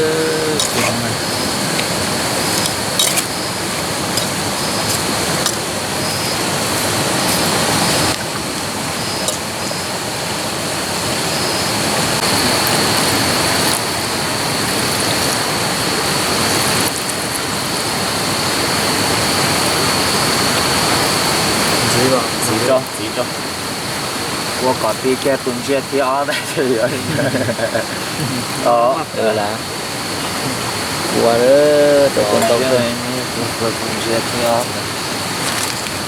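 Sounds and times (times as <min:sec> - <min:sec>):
food sizzling in hot oil: 0:00.0 - 0:26.0, 0:28.6 - 0:36.0
oil spatter crackles: 0:00.4 - 0:10.2, 0:12.1 - 0:23.0, 0:33.5 - 0:36.0.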